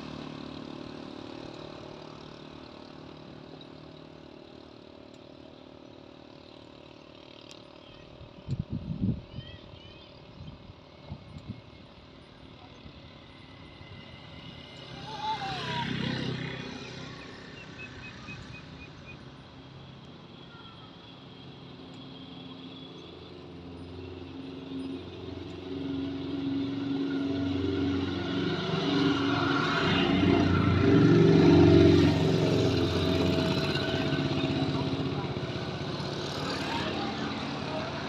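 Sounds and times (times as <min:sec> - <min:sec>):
vehicle engine running: 0:00.0 - 0:38.0
faint bird chirps: 0:16.8 - 0:19.2.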